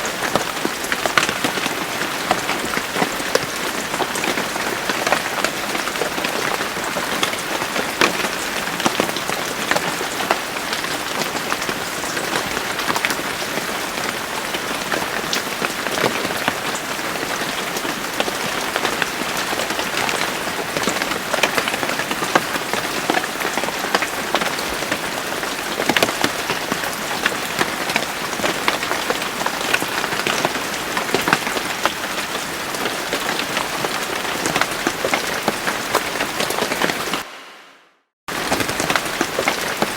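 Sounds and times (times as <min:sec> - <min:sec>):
raindrops striking close by: 0:00.0 - 0:37.3, 0:38.3 - 0:39.9
steady rain falling: 0:00.0 - 0:37.7, 0:38.3 - 0:39.9.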